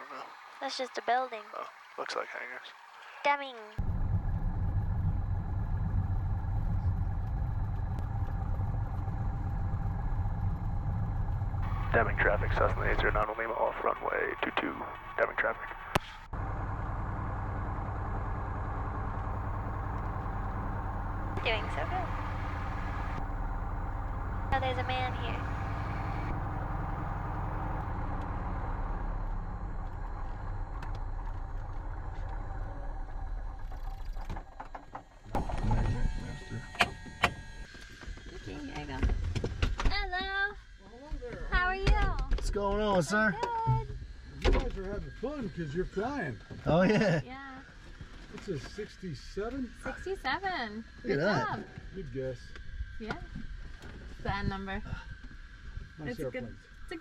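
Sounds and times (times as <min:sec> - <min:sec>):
aircraft engine running: 0:02.0 - 0:40.4, 0:41.5 - 0:57.0.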